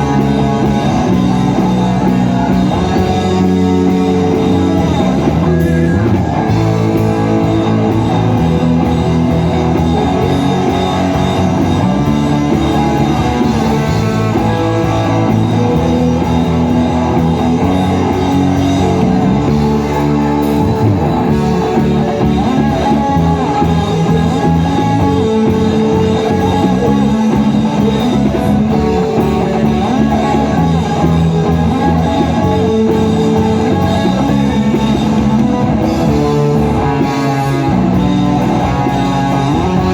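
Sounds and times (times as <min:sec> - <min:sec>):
band playing praise music: 0:00.0 - 0:39.9
lead guitar: 0:00.0 - 0:39.9.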